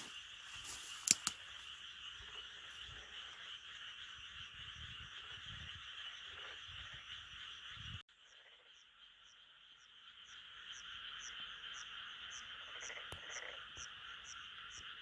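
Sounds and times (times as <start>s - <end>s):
frogs calling: 0.0s - 15.0s
sharp clicks: 0.9s - 1.4s.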